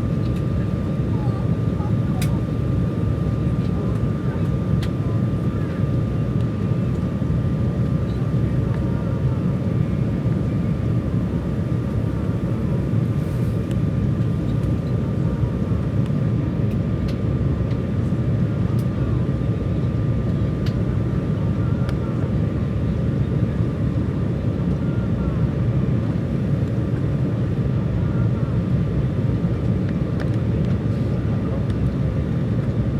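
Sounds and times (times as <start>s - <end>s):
jet cabin rumble: 0.0s - 32.9s.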